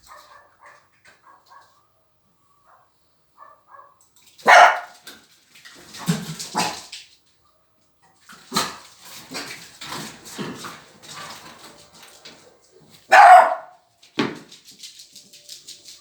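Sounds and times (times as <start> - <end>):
dogs barking: 0.0 - 5.0, 13.0 - 13.8.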